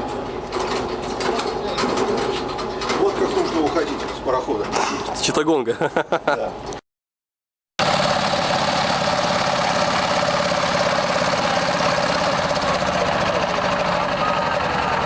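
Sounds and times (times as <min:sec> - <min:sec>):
boat engine running: 0:07.8 - 0:15.0.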